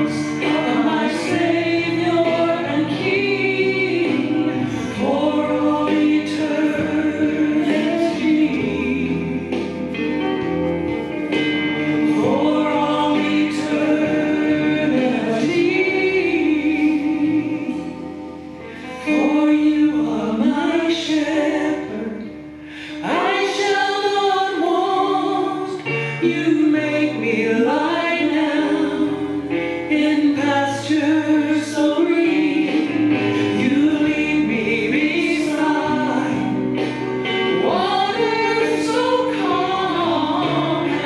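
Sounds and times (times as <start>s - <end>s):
worship singing: 0.0s - 9.6s, 12.1s - 17.8s, 23.0s - 36.6s, 37.2s - 41.0s.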